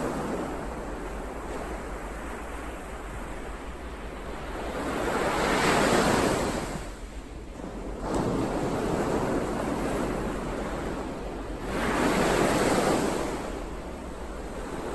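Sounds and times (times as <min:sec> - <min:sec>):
ocean waves breaking: 0:07.6 - 0:14.9.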